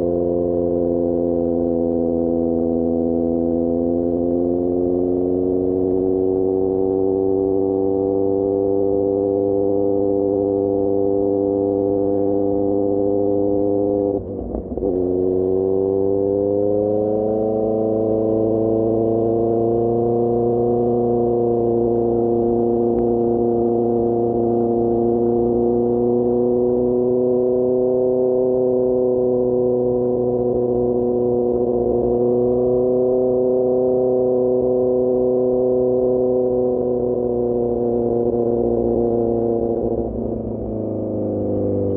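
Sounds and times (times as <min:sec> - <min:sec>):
motorcycle engine cruising: 0:00.0 - 0:41.9.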